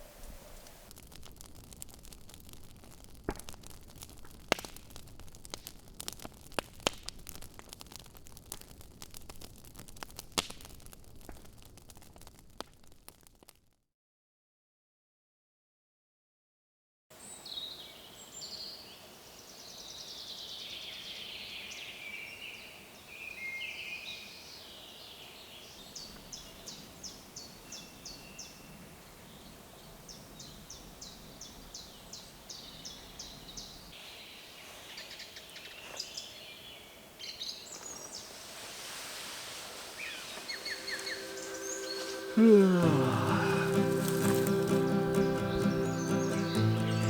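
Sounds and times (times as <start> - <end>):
birds singing and trilling: 43.4 - 47.0.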